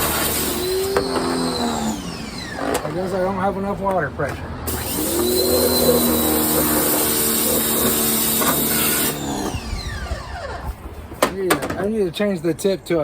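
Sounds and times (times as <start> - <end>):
motor winding down whine: 0.0 - 3.2, 4.6 - 10.8
pressure washer motor humming: 0.0 - 11.6.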